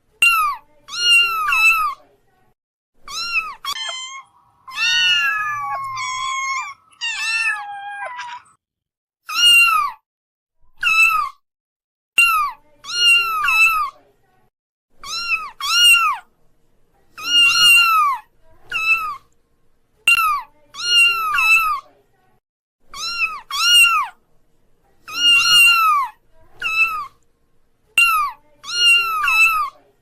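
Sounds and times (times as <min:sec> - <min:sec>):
kittens meowing: 0:00.2 - 0:01.9, 0:03.1 - 0:08.6, 0:15.0 - 0:16.2, 0:17.2 - 0:19.2, 0:23.0 - 0:24.2, 0:25.1 - 0:27.2, 0:28.0 - 0:29.7.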